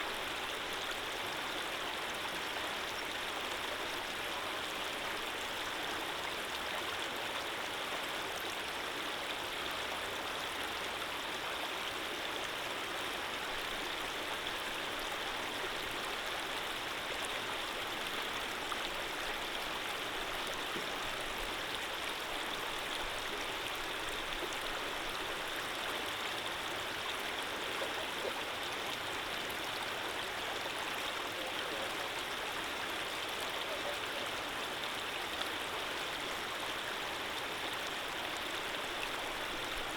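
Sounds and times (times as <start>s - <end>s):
running water rushing: 12.2s - 39.9s.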